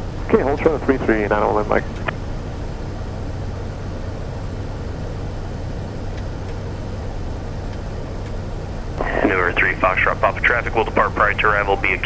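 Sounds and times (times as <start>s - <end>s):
turboprop cabin drone: 0.0s - 12.0s.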